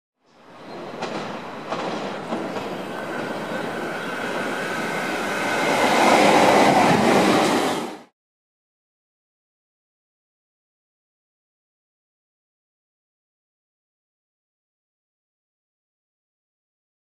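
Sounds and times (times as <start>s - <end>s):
train rumbling past: 0.3s - 8.1s
wheels clicking over rail joints: 0.6s - 7.6s.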